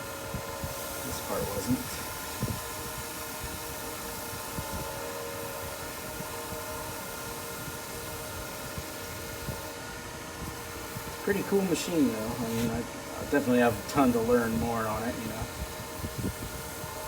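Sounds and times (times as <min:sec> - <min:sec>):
wood lathe motor whine: 0:00.0 - 0:17.0
sanding block on spinning wood: 0:10.5 - 0:17.0.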